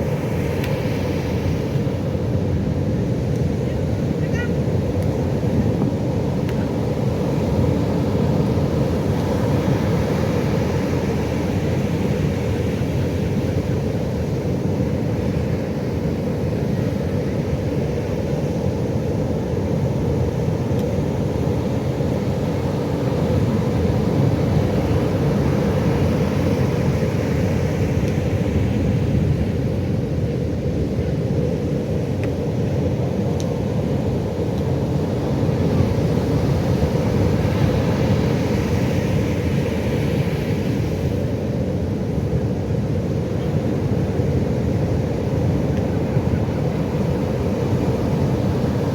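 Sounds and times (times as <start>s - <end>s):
ocean waves breaking: 0.0s - 48.9s.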